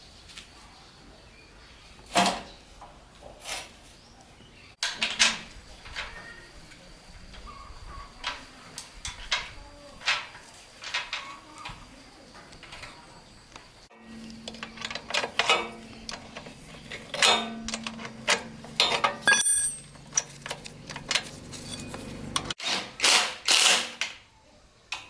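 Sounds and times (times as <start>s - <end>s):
metallic clinks and knocks: 14.3s - 22.5s.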